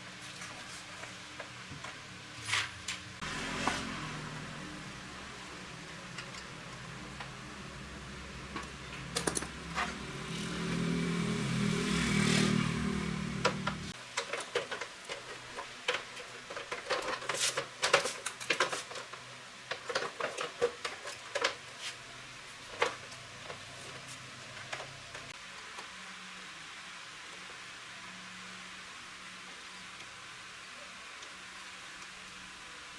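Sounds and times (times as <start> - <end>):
motorbike engine revving: 3.2 - 14.0
sharp clicks and knocks: 13.4 - 14.9.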